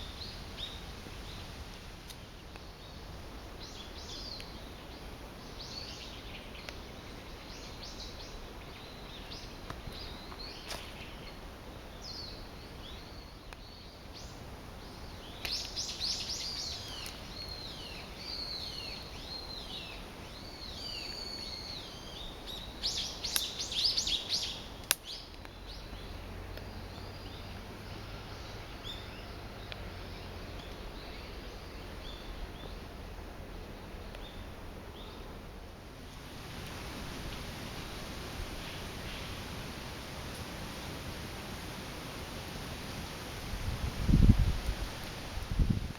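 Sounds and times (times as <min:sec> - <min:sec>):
outdoor background hiss: 0:00.0 - 0:45.9
small birds chirping: 0:02.5 - 0:33.0, 0:36.5 - 0:40.9.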